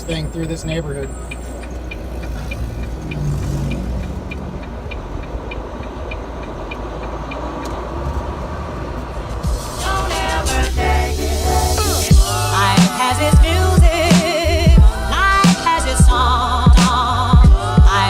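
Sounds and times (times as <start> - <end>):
light even ticking: 0.0 - 9.4
diesel truck engine: 0.0 - 18.0
road rumble: 0.0 - 18.0.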